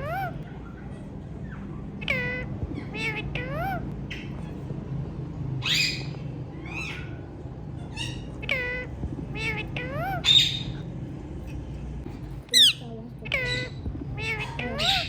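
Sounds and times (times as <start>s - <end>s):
parrot screeches: 0.0s - 4.6s
parrots whistling calls: 0.0s - 4.7s, 5.6s - 10.8s, 12.6s - 15.0s.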